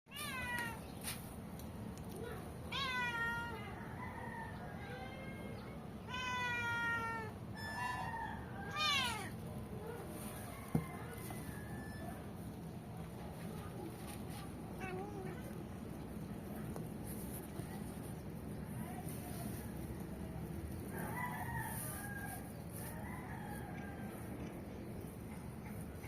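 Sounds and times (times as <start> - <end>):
cat meowing: 6.1 - 7.8, 8.7 - 9.4.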